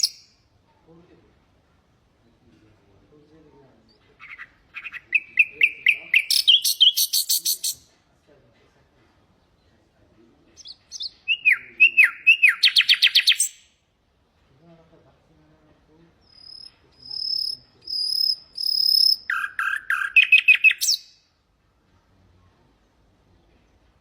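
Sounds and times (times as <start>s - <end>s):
nightingale singing: 0.0s - 0.4s, 3.8s - 7.9s, 10.6s - 13.8s, 16.2s - 21.3s.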